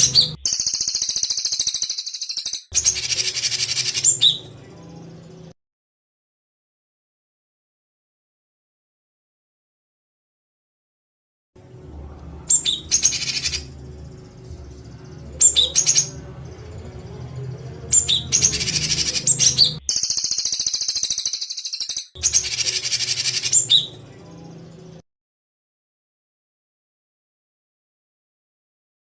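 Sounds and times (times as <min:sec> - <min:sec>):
songbird harsh rattling call: 0:00.0 - 0:04.4, 0:17.9 - 0:23.8
faint low hum: 0:11.6 - 0:19.8.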